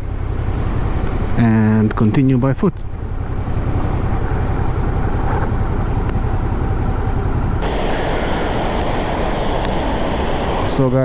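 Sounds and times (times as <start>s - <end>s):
steady low rumble: 3.1s - 11.0s
waterfall roaring: 7.6s - 11.0s.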